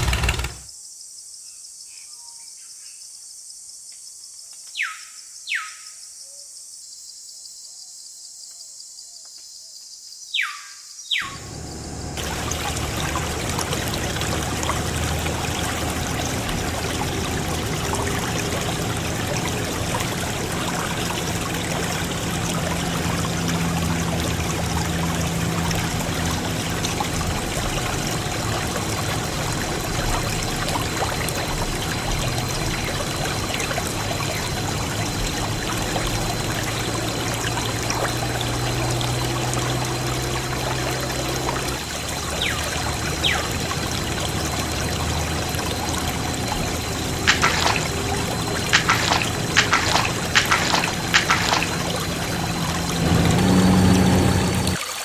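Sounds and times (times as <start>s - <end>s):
water gushing from pump: 0.0s - 0.7s, 11.4s - 55.0s
faint low pump hum: 11.3s - 54.8s.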